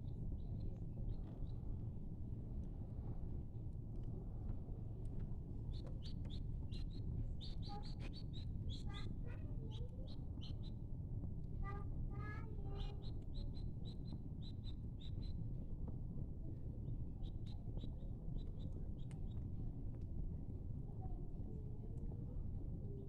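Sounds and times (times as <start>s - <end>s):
low background rumble: 0.0s - 23.0s
small birds chirping: 5.7s - 10.8s, 12.6s - 15.4s.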